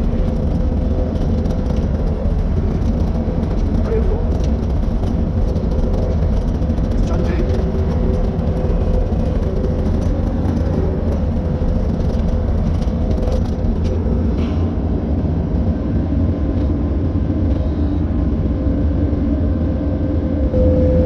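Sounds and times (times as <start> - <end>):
skid steer engine rumbling: 0.0 - 18.8
faint steady whine: 17.0 - 21.0.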